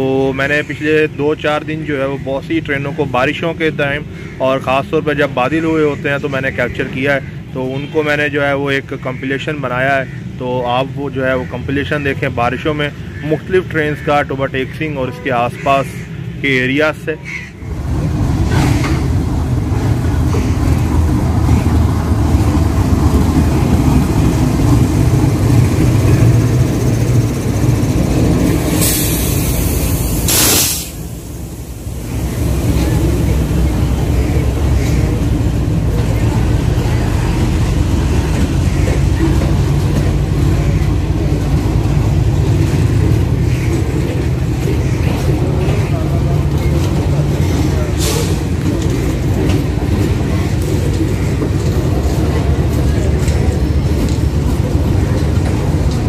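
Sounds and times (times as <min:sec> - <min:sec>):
diesel locomotive rumble: 0:00.0 - 0:56.0
loud air hiss: 0:28.5 - 0:33.2.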